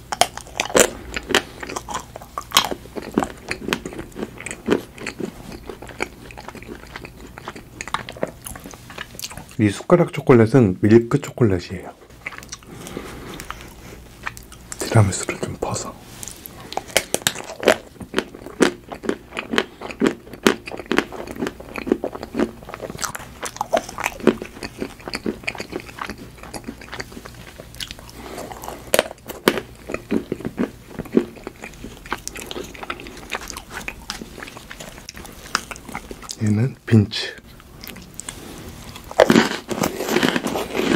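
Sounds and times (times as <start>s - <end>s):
chocolate crunching: 0.0s - 9.6s, 12.1s - 36.6s, 37.5s - 40.9s
soft wet chewing: 0.0s - 9.6s, 11.9s - 36.4s, 37.4s - 40.9s.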